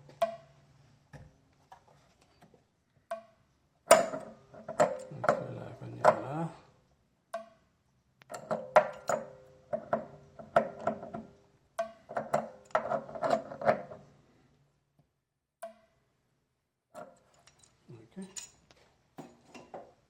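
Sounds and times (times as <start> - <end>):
metal tools clinking: 17.2 - 18.8.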